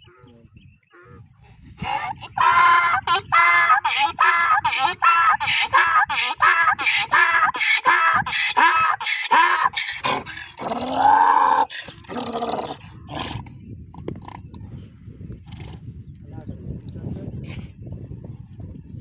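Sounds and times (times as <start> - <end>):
donkey braying: 1.0 - 13.4.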